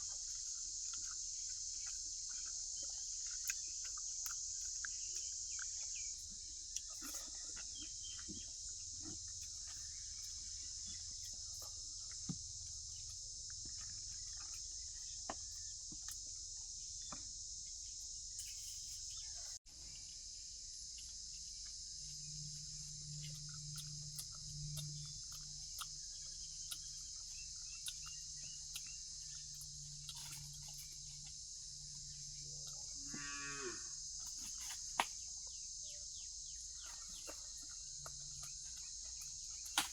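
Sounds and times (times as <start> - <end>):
crickets chirring: 0.0 - 39.9
low steady drone: 21.4 - 33.1
cow mooing: 33.0 - 34.0.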